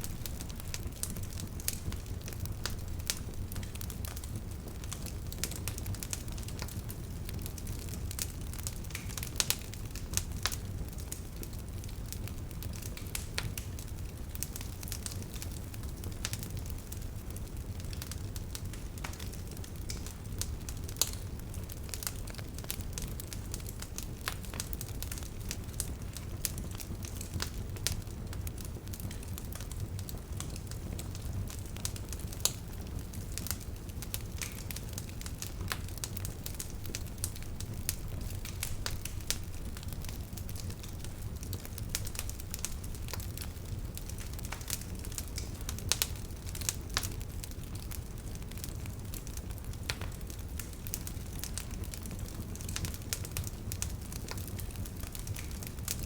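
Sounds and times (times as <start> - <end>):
bonfire crackling and popping: 0.0 - 56.0.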